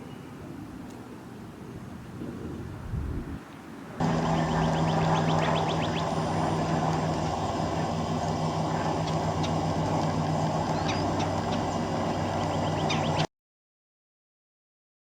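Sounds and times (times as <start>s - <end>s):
low hum and rumble: 2.2s - 3.4s, 4.0s - 13.3s
high bird chirps: 4.0s - 13.3s.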